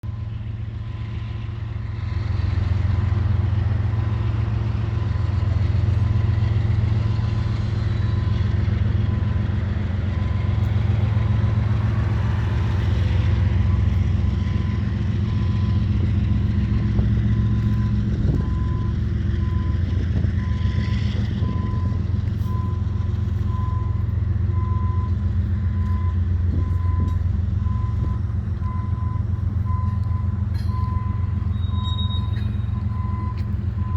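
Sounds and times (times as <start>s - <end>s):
train clanks: 0.0s - 33.9s
train rumbling past: 0.0s - 33.9s
repeating high beep: 30.8s - 33.4s.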